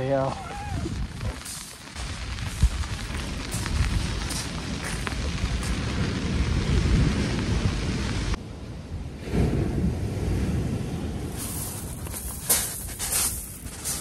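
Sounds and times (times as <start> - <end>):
rain hissing: 0.0 - 8.4, 11.0 - 14.0
wind buffeting microphone: 0.0 - 14.0.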